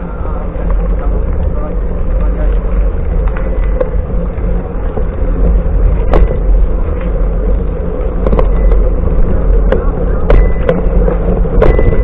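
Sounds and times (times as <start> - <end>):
wind buffeting microphone: 0.0 - 12.0
sharp clicks and knocks: 4.9 - 7.2, 8.0 - 12.0.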